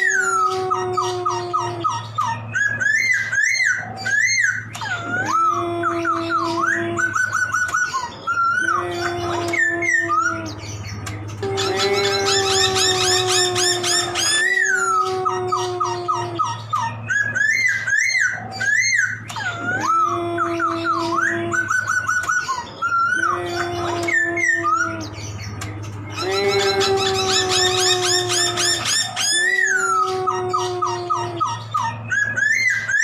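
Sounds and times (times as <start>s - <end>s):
low hum: 8.4s - 33.0s.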